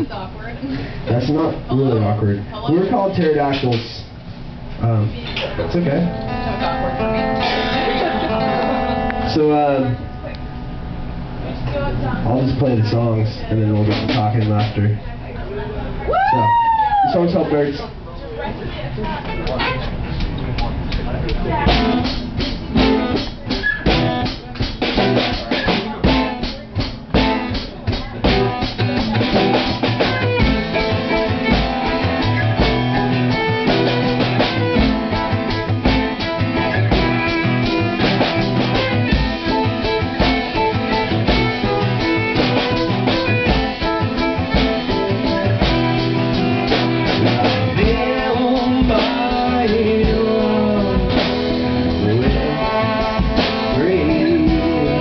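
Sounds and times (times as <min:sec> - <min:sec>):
rock band playing: 0:05.6 - 0:11.9, 0:13.8 - 0:14.9, 0:21.5 - 0:55.0
hard drum hits: 0:06.4 - 0:09.7, 0:13.9 - 0:14.9, 0:21.5 - 0:55.0.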